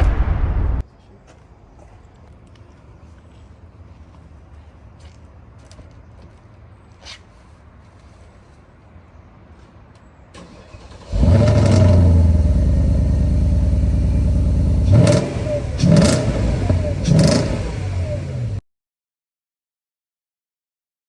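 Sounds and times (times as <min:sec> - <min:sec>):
car engine starting and revving: 0:10.4 - 0:18.6.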